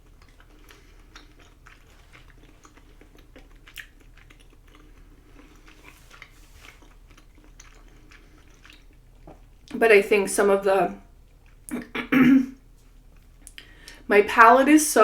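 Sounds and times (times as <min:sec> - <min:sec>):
close chewing mouth sounds: 0:00.0 - 0:09.8, 0:11.1 - 0:12.0, 0:12.6 - 0:14.0.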